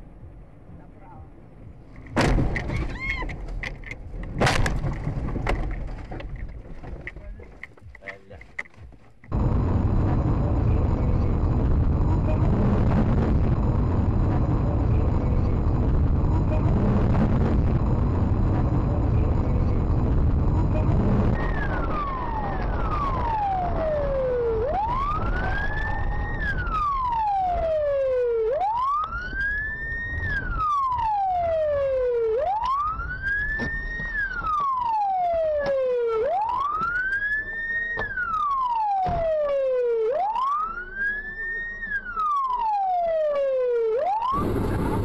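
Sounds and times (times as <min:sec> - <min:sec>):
road noise: 0:00.0 - 0:45.0
emergency vehicle siren wailing: 0:09.3 - 0:45.0.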